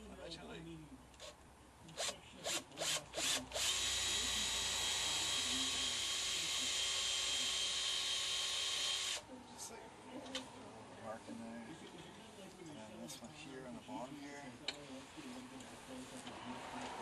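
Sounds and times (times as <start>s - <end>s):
electric drill drilling: 2.0s - 9.2s.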